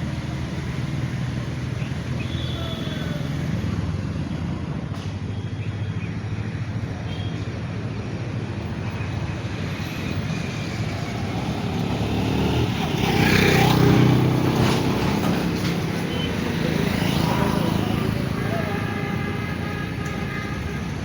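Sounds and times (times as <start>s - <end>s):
road traffic: 0.0s - 21.0s
vehicle passing close: 10.0s - 18.7s.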